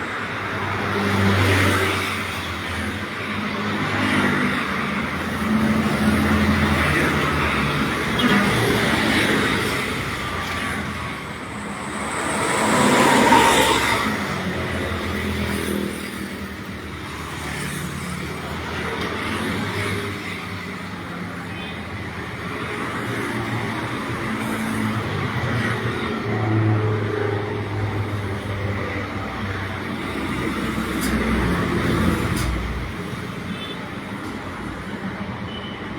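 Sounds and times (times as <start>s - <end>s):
vehicle passing: 9.8s - 15.4s.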